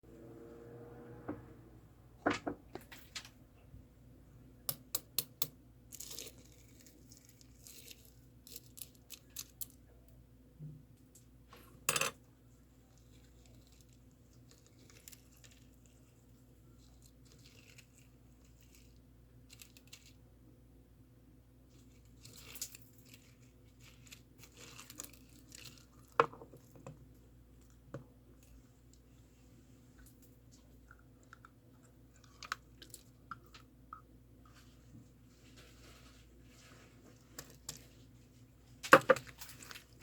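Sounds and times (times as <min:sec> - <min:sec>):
small objects clicking and tapping: 0:04.7 - 0:06.4.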